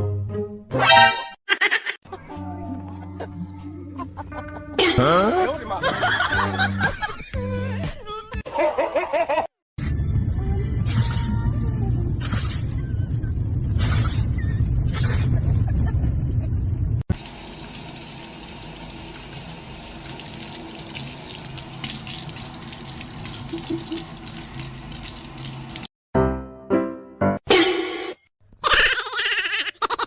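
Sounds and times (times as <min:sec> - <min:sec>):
loud low rumble: 0:09.8 - 0:17.0
water running and splashing: 0:17.1 - 0:25.9.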